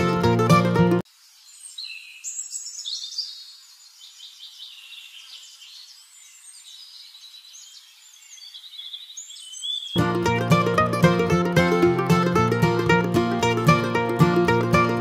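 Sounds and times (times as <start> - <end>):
songbirds chirping and twittering: 1.0 - 10.1.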